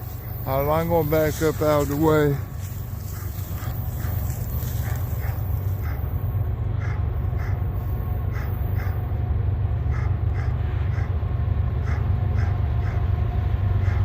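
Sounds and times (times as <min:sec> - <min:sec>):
high squeaks from train: 0:00.0 - 0:06.4
diesel train rumble: 0:00.0 - 0:14.0.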